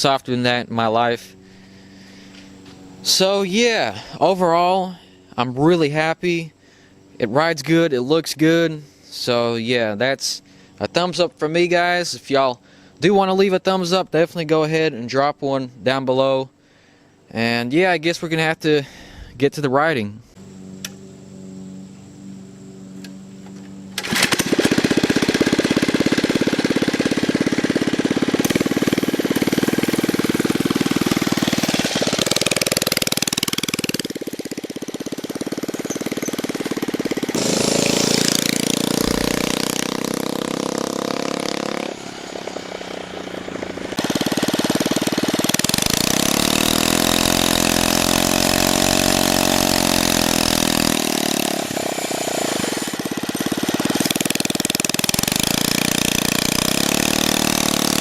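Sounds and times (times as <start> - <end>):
scooter engine under throttle: 23.9 - 58.0.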